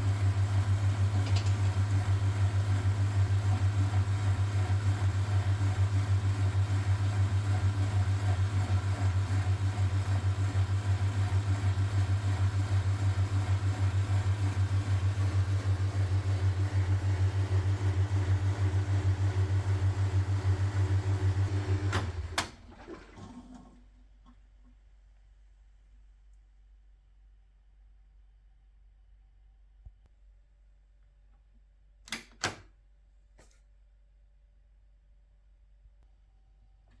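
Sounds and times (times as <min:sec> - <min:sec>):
washing machine humming: 0:00.0 - 0:24.1
washing machine switch clicks: 0:32.1 - 0:32.7.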